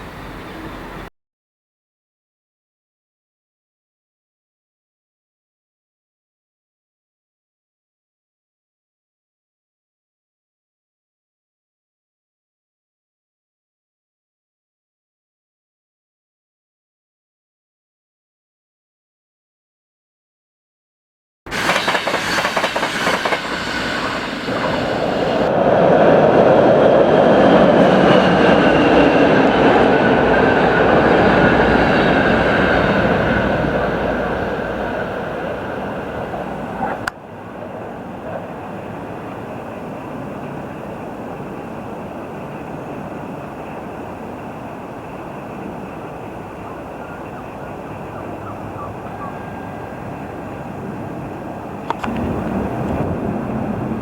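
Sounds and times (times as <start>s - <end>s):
train rumbling past: 0.0s - 1.1s, 21.5s - 54.0s
train wheels clicking over rail joints: 21.5s - 25.5s.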